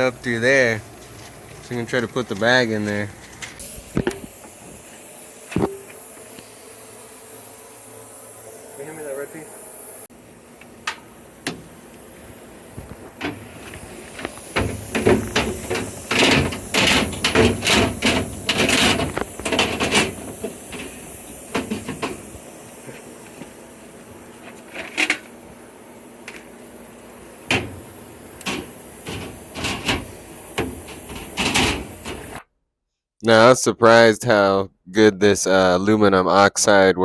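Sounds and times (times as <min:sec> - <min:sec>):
steady hiss: 0:00.0 - 0:32.4
clattering knocks and bangs: 0:14.6 - 0:20.6.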